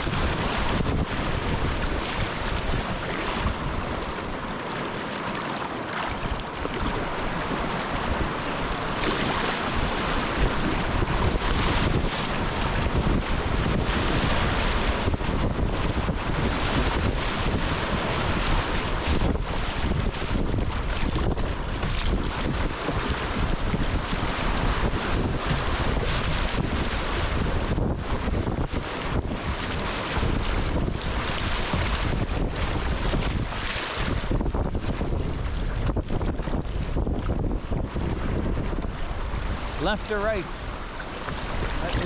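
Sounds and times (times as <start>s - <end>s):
river water rushing through rapids: 0.0s - 12.9s, 38.9s - 42.0s
wind rumbling on microphone: 0.0s - 42.0s.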